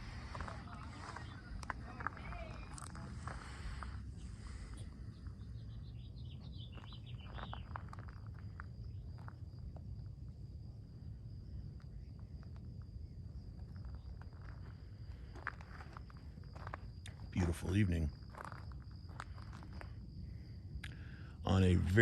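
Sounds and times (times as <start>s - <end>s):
high-pitched insect trill: 1.0s - 22.0s.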